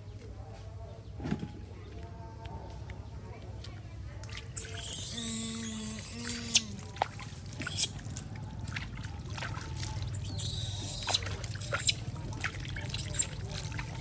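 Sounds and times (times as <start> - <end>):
water splashing: 4.3 - 14.0
shower hose spraying water: 4.6 - 8.2, 10.1 - 14.0.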